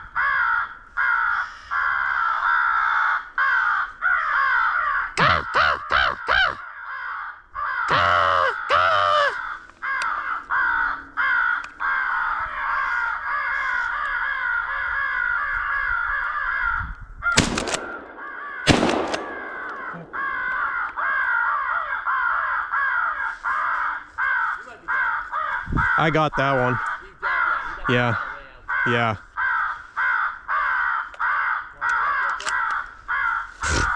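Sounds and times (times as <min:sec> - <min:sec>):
crows cawing: 0:00.0 - 0:33.9
shotgun shots: 0:17.4 - 0:20.7.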